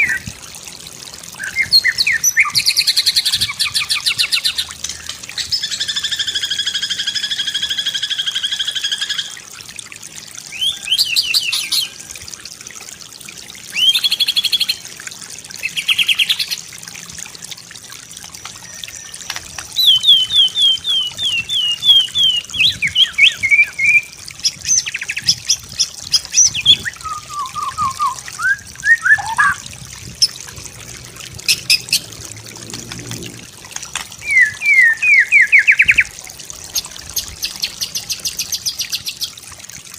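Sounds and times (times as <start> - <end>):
bird singing varied song: 18.7 - 29.6, 34.2 - 36.1.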